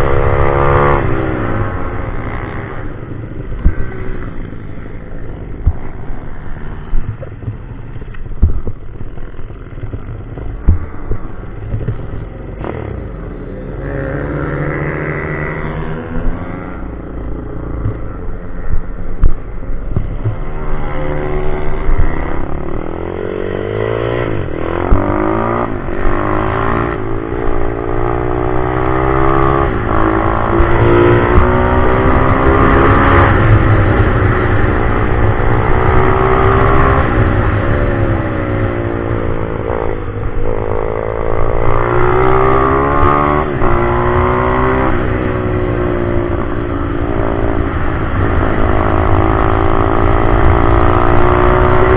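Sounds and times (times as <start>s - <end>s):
pit bike engine revving: 20.3s - 51.9s.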